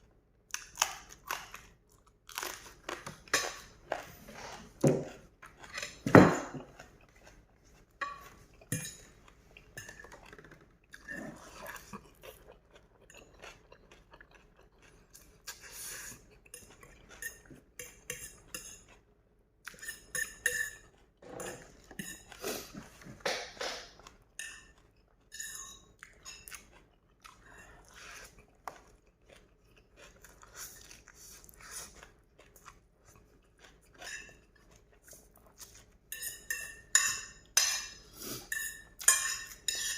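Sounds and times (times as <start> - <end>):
chewing noodles: 0.6 - 23.2, 23.9 - 39.9
cutlery clinking against a bowl: 3.2 - 3.8, 8.0 - 11.3, 16.5 - 19.0, 19.7 - 22.4, 23.0 - 26.8, 34.0 - 34.8, 36.1 - 39.9.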